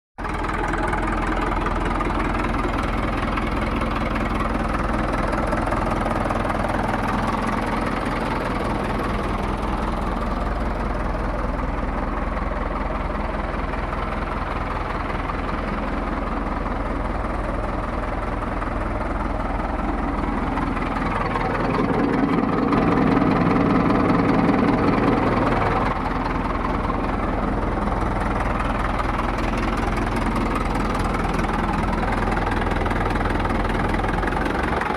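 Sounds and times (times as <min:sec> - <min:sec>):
tractor diesel engine idling: 0:00.2 - 0:34.9.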